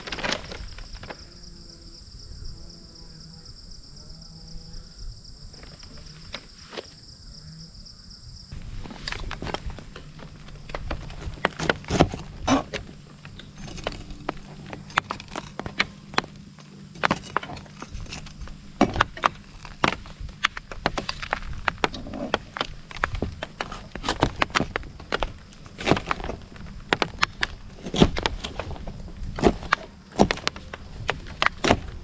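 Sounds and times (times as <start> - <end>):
low steady hum: 8.5 - 32.0.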